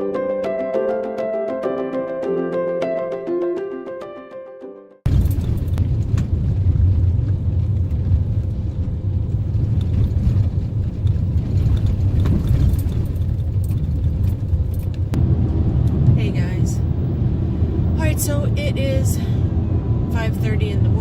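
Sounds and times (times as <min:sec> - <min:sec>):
piano music: 0:00.0 - 0:05.0
car road noise rumble: 0:05.1 - 0:21.0.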